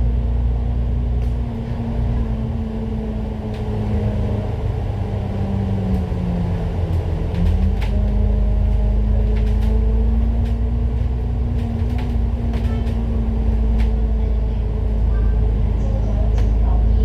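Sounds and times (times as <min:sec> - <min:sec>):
bus engine and road rumble: 0:00.0 - 0:17.0
light rattles and clicks: 0:05.3 - 0:16.8.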